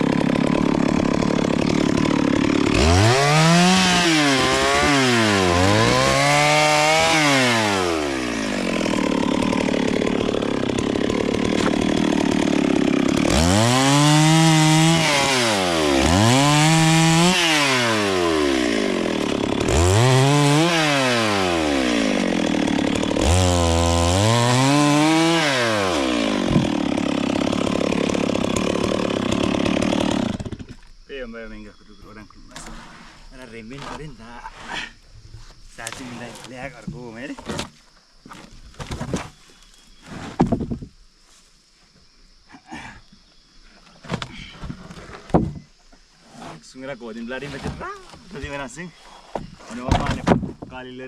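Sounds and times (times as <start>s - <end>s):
chainsaw revving: 0.0s - 30.8s.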